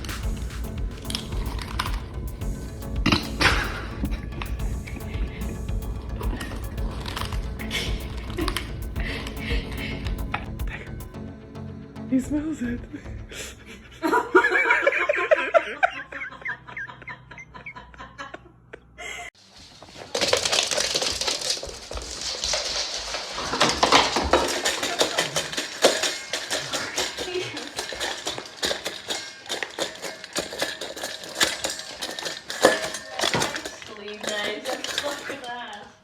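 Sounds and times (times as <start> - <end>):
rapid clattering and clinking: 0.0 - 11.2, 19.6 - 36.0.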